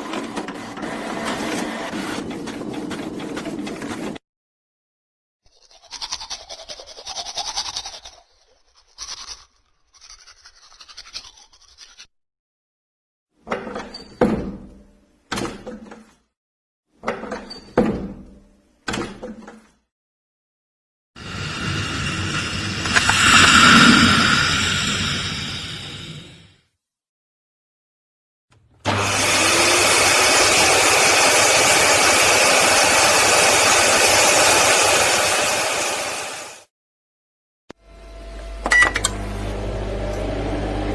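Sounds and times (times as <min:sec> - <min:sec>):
electric appliance motor running: 0:00.0 - 0:02.2, 0:28.8 - 0:36.6, 0:37.8 - 0:40.9.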